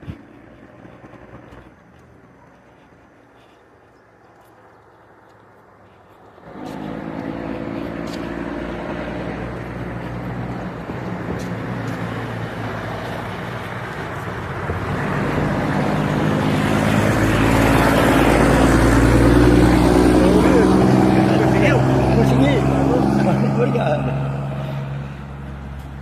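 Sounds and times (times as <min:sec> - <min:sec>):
motor engine running: 0:06.5 - 0:12.0.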